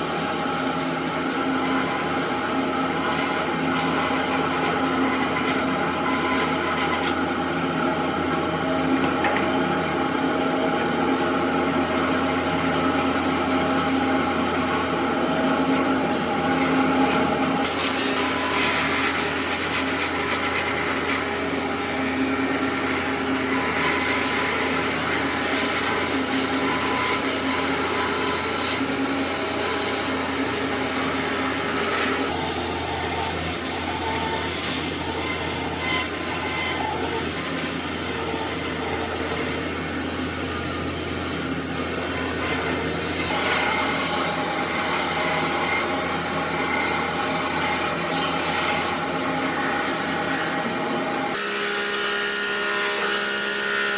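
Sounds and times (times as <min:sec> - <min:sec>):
power tool sanding wood: 0:00.0 - 0:53.9.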